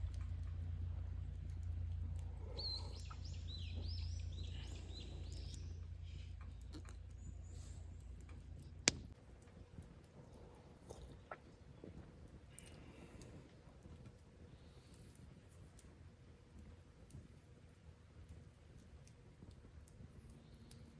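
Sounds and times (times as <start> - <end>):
low rumble: 0.0 - 14.8
bird chirping: 1.6 - 8.1.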